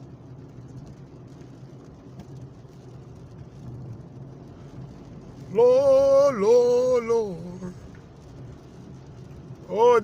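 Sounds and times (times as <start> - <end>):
car cabin hum: 0.0 - 10.0
man exclaiming loudly: 5.5 - 7.8, 9.7 - 10.0.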